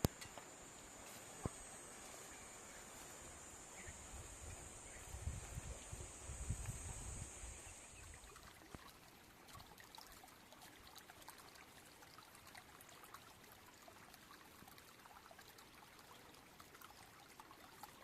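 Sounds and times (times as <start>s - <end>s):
high steady hiss: 0.0s - 9.1s
faint trickling water: 0.0s - 18.0s.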